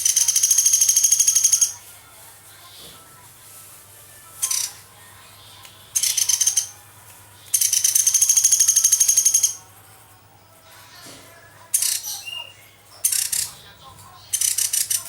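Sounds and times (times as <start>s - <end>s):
woodpecker high-pitched trill: 0.0s - 1.8s, 4.4s - 4.8s, 5.9s - 6.9s, 7.5s - 9.7s, 11.8s - 13.5s.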